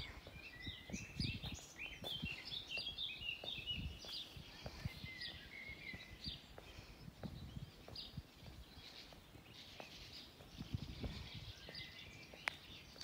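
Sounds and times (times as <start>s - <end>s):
soft low thumps: 0.0s - 12.5s
songbirds chirping and trilling: 0.0s - 13.0s.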